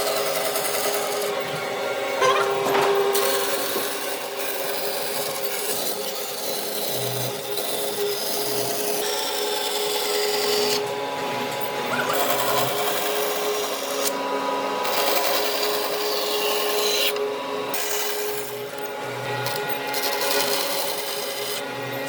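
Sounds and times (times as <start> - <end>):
tool scraping wood: 0.6 - 8.7.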